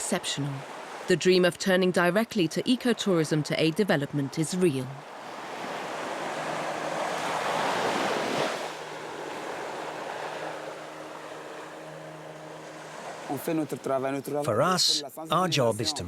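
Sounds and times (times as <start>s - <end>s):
surf washing onto a beach: 5.0s - 14.7s.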